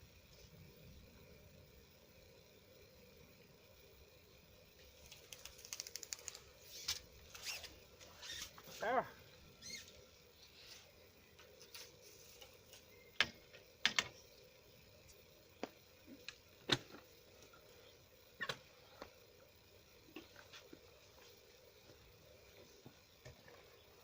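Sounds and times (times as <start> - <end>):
faint steady hiss: 0.0 - 24.0
sharp clicks and knocks: 13.2 - 14.2.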